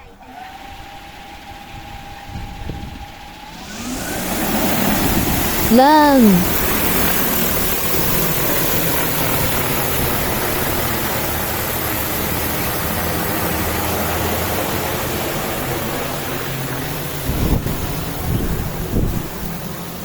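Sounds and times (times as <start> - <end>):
drone rotors running: 3.4 - 5.7.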